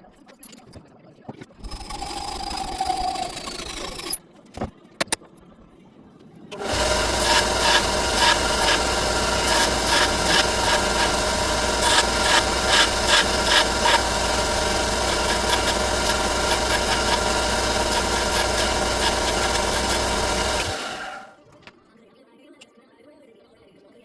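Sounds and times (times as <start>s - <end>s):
rapid scraping and clicking: 1.4s - 5.2s, 6.5s - 21.7s
workshop tool humming: 1.6s - 4.2s, 6.5s - 21.4s.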